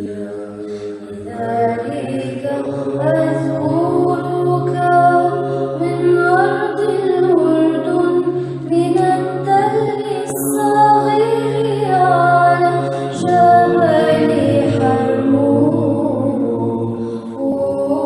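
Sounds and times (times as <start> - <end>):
women singing chant a cappella: 0.0 - 18.0
held drone note sung: 3.6 - 18.0.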